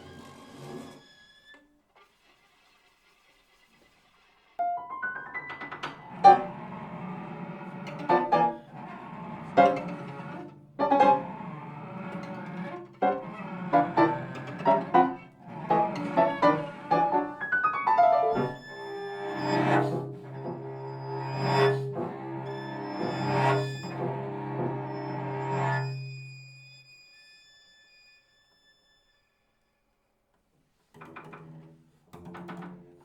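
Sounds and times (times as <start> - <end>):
piano chords and runs: 4.6 - 25.8
sustained string notes: 4.9 - 26.2.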